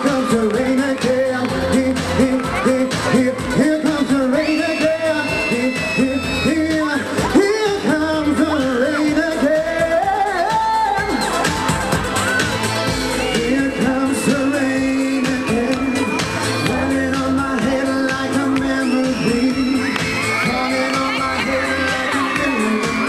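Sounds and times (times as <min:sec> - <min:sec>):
lead vocalist singing: 0:00.0 - 0:11.6, 0:13.1 - 0:23.0
live pop music: 0:00.0 - 0:23.0.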